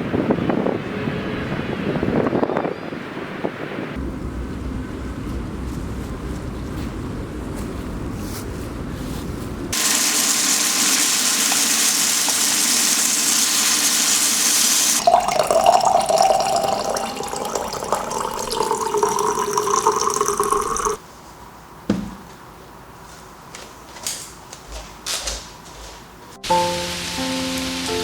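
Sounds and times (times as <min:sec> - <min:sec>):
water running from tap: 0:09.8 - 0:21.0.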